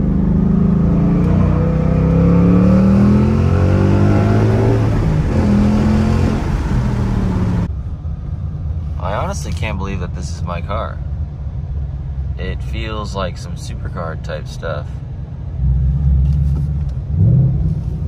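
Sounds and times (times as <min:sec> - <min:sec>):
car engine accelerating hard: 0:00.0 - 0:07.7.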